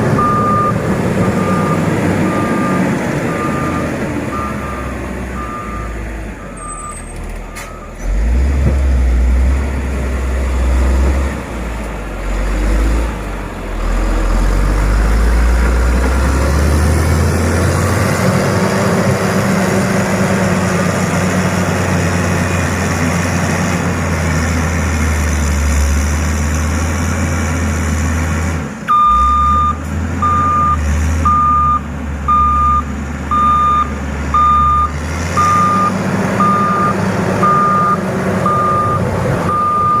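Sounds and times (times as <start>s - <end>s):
diesel engine running: 0.0s - 40.0s
reversing alarm beeping: 0.2s - 8.0s, 28.9s - 40.0s.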